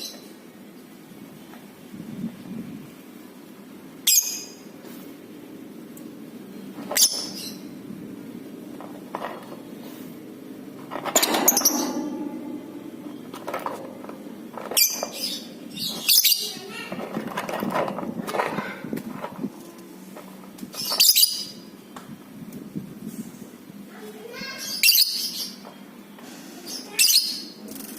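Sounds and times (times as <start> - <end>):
steady low hum: 7.6 - 20.8.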